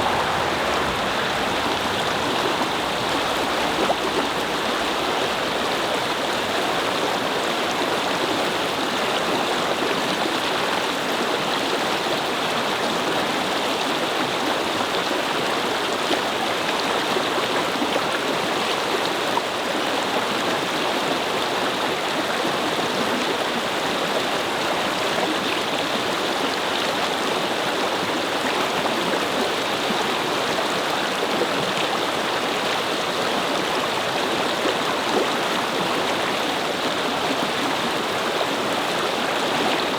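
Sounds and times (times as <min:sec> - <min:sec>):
brook babbling: 0:00.0 - 0:12.6, 0:22.5 - 0:39.9.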